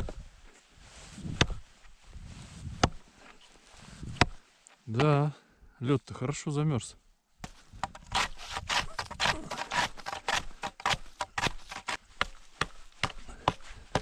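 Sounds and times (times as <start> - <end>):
ice being chopped: 8.2 - 12.0.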